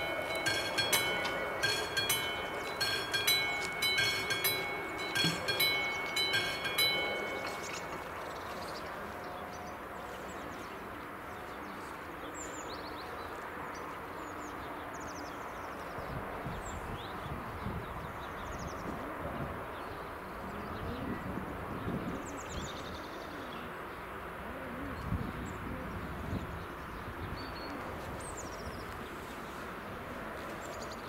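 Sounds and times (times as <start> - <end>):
level crossing warning bell: 0.0 - 10.2.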